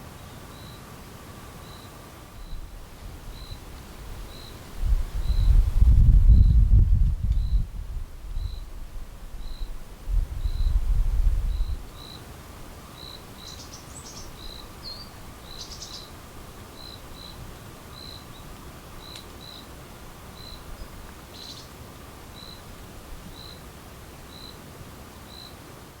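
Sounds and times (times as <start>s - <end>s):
bird twitters: 13.0s - 16.1s, 21.3s - 21.7s.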